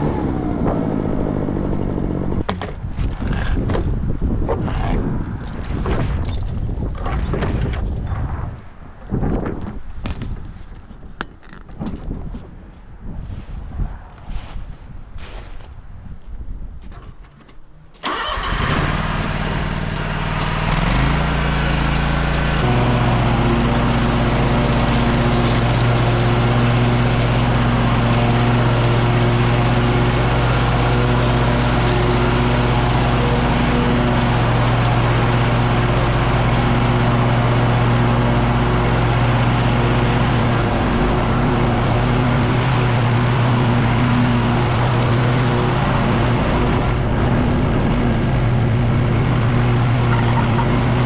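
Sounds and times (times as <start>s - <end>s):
leaf blower engine: 18.0s - 51.0s.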